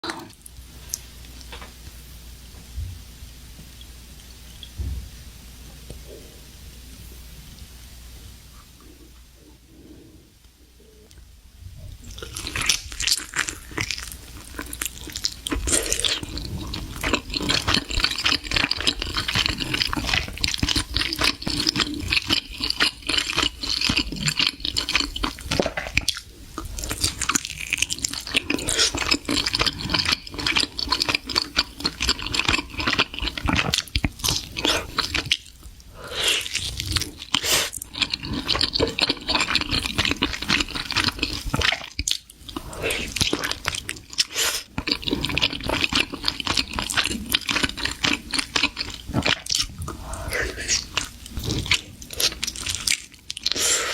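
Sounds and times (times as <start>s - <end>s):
person chewing and crunching: 12.0s - 53.9s.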